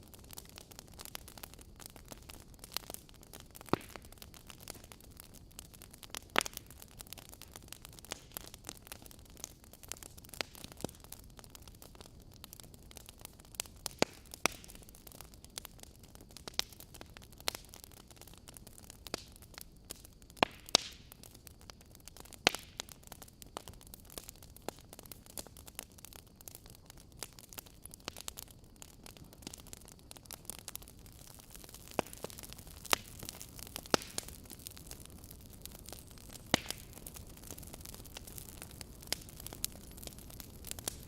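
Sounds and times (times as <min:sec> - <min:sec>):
faint steady hiss: 0:00.0 - 0:41.0
wood fire crackling: 0:00.0 - 0:41.0
sharp pops and snaps: 0:02.8 - 0:05.0, 0:13.9 - 0:14.9, 0:20.3 - 0:21.3, 0:31.5 - 0:41.0.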